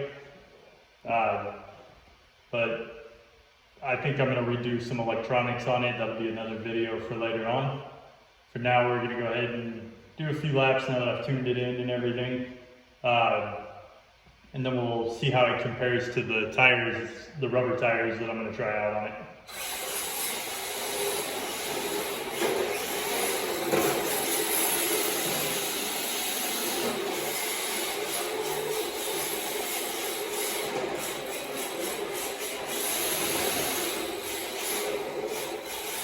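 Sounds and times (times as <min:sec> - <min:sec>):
toy car drivetrain whir: 0:19.5 - 0:36.0.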